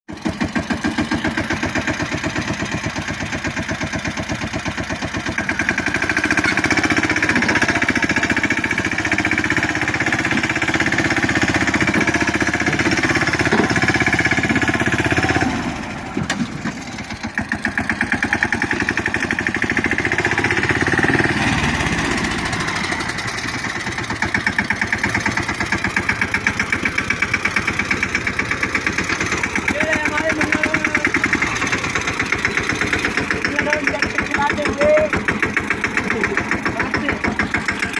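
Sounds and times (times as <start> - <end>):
tractor diesel engine running: 0.1 - 37.9.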